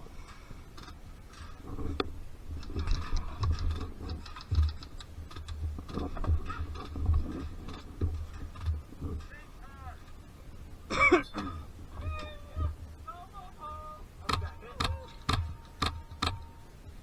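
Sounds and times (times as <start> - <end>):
irregular clicks and taps: 14.2 - 16.6.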